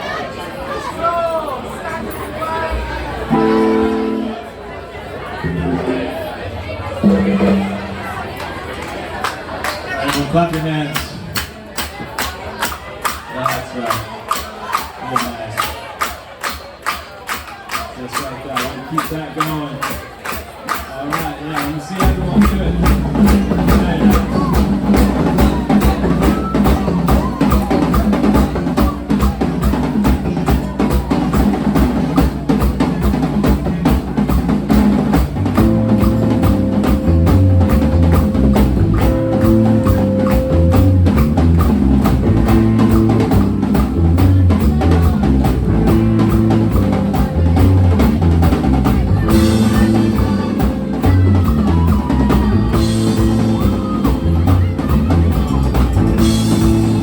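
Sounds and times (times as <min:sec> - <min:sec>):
drum kit beat: 0:03.2 - 0:04.3, 0:07.0 - 0:08.4, 0:18.6 - 0:57.0
bass line: 0:05.4 - 0:08.4, 0:22.0 - 0:57.0.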